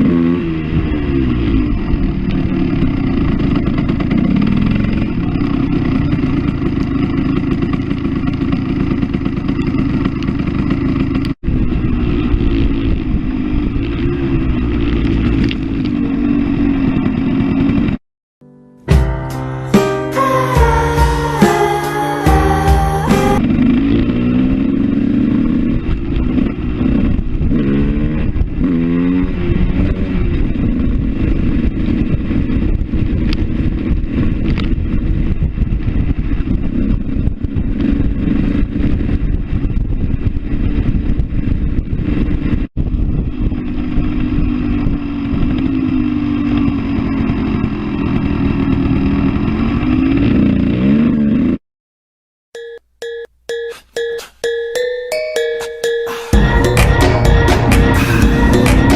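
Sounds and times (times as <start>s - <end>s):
motorcycle engine: 0.0s - 18.0s, 18.9s - 51.6s, 56.2s - 58.9s.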